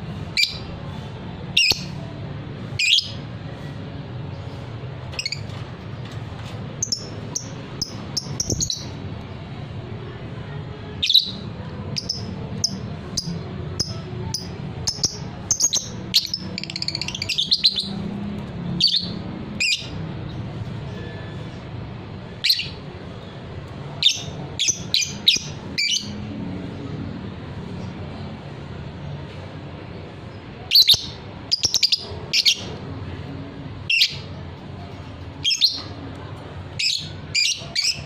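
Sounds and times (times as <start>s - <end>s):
lovebird chirping and screeching: 14.9s - 17.9s, 18.8s - 20.0s, 30.7s - 32.7s, 35.4s - 35.9s, 36.8s - 38.0s.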